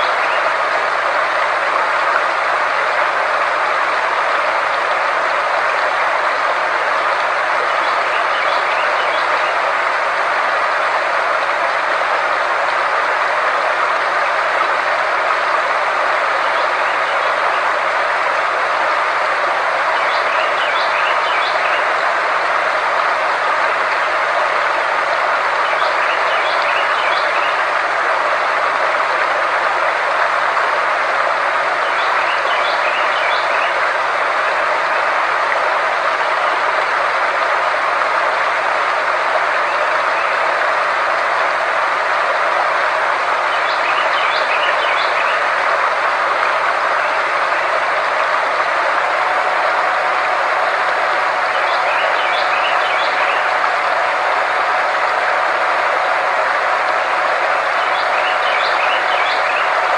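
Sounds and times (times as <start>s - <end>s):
steady rushing noise: 47.6s - 59.9s.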